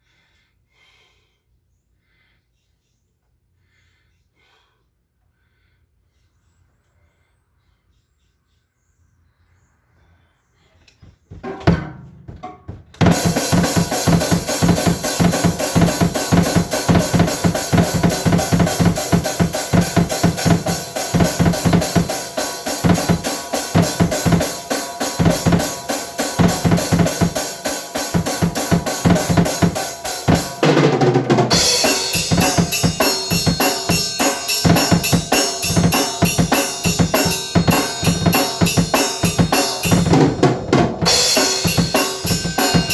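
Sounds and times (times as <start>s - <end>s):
drum kit beat: 11.3s - 42.9s
cymbal crash: 13.1s - 30.7s, 31.4s - 40.1s, 41.0s - 42.9s.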